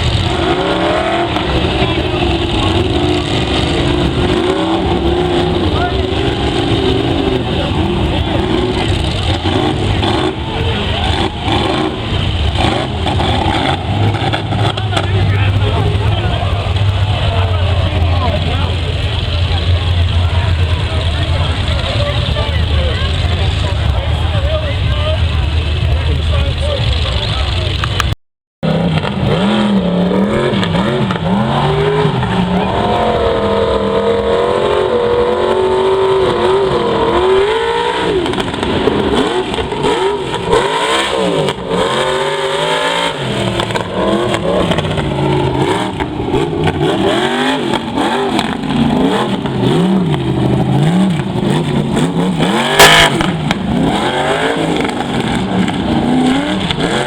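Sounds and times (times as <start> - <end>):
truck engine revving hard: 0.0 - 57.0.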